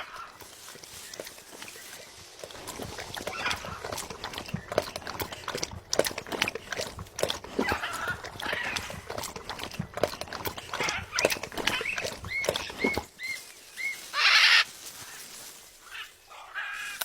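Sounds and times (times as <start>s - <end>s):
parrot scratchy calls: 10.7s - 15.2s, 15.8s - 17.0s.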